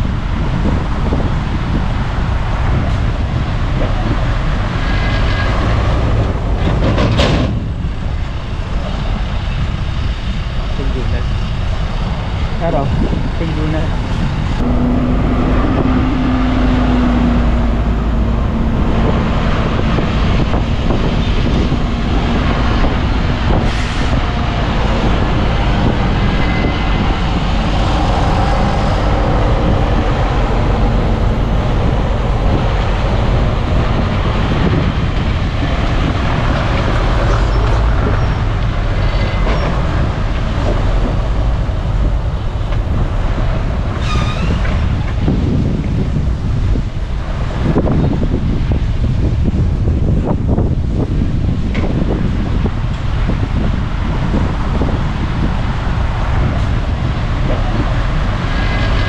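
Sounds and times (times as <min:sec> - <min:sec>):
bulldozer diesel engine: 0:00.0 - 0:59.0
steel tracks clattering: 0:00.0 - 0:59.0
short squeals: 0:44.0 - 0:44.8.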